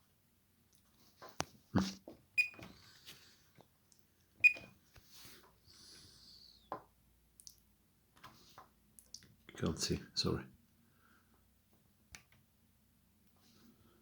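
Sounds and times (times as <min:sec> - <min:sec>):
multimeter beeps: 0:02.4 - 0:02.6, 0:04.4 - 0:04.7.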